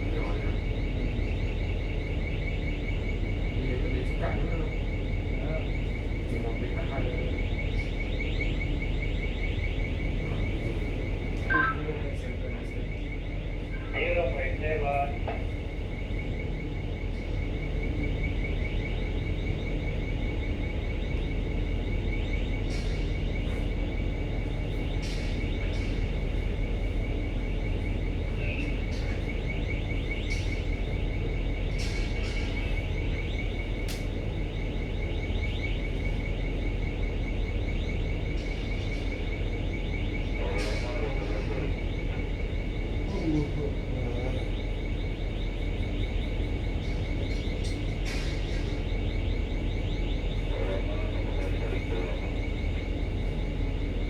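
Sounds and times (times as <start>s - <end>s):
low machinery hum: 0.0s - 54.0s
faint high pulsing tone: 4.2s - 21.6s
faint voices: 10.1s - 15.6s, 40.3s - 44.9s, 50.2s - 54.0s.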